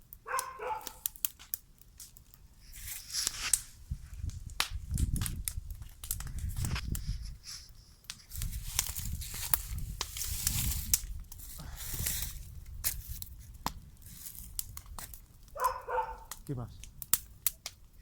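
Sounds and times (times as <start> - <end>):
bonfire crackling: 0.0 - 18.0
sharp snaps: 0.1 - 2.3, 3.1 - 7.0, 8.0 - 11.4, 13.6 - 17.8
rustling and tearing noises: 0.2 - 18.0.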